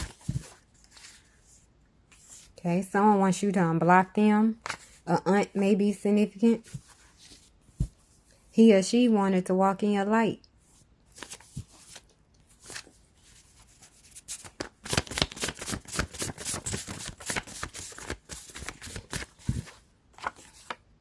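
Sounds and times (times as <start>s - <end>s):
cards being shuffled: 14.0s - 20.8s.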